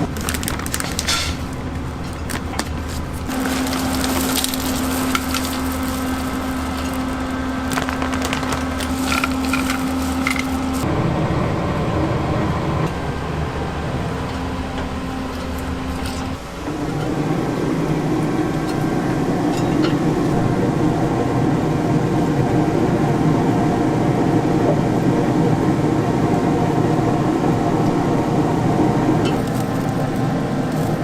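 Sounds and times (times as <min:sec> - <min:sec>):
firewood crackling and snapping: 0:00.0 - 0:10.9, 0:29.1 - 0:31.0
steady low hum: 0:00.0 - 0:31.0.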